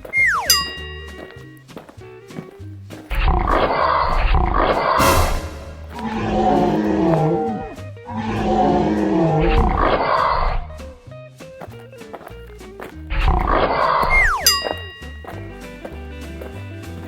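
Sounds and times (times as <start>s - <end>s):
background music: 0.0s - 17.0s
animal roar: 5.9s - 10.7s.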